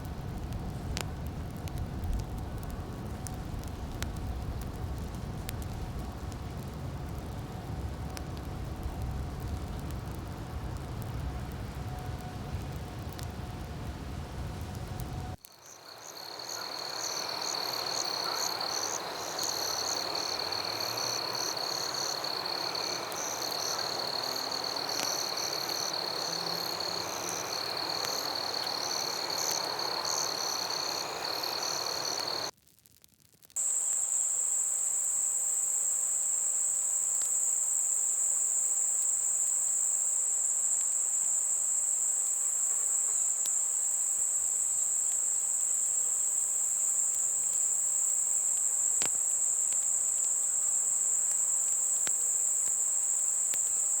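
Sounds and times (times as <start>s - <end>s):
insects trilling: 15.4s - 32.5s, 33.6s - 54.0s.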